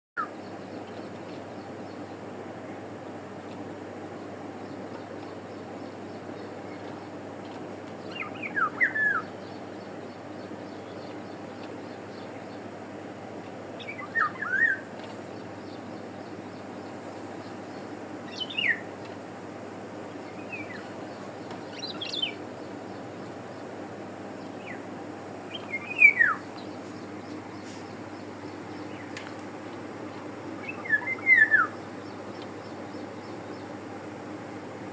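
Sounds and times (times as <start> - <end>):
steady low background noise: 0.2 - 34.9
bird whistling downward phrases: 8.2 - 9.3, 13.9 - 14.8, 25.5 - 26.5, 30.6 - 31.8.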